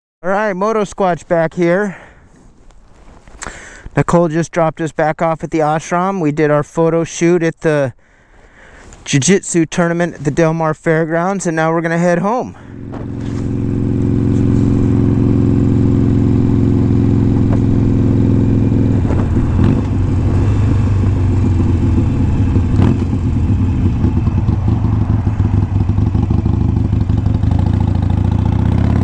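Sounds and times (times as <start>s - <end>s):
motorcycle engine running: 12.6s - 29.0s
sharp engine knocks: 17.1s - 20.1s.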